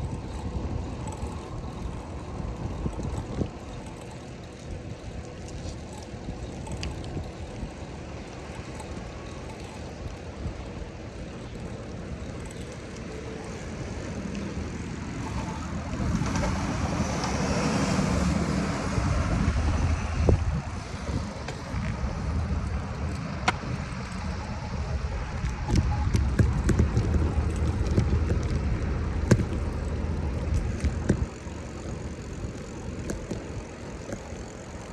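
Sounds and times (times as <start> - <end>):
street traffic rumble: 0.0 - 34.9
vehicle passing: 13.2 - 25.2.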